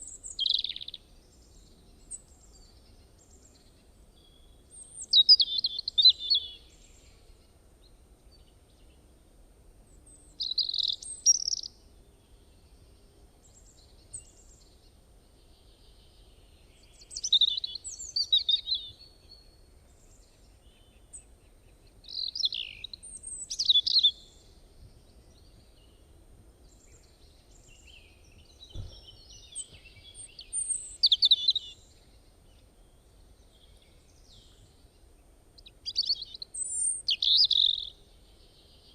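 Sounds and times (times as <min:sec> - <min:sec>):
bird chirping rapidly: 0:10.4 - 0:11.7.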